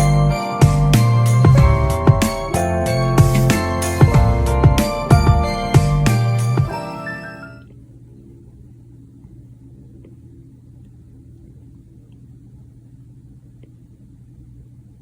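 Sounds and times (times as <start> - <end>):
low steady hum: 0.0 - 6.9.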